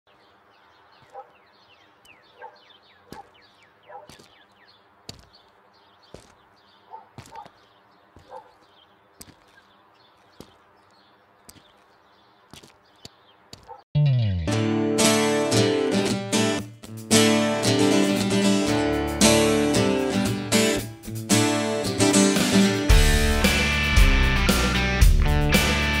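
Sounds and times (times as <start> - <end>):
faint birds chirping: 0.1 - 13.9.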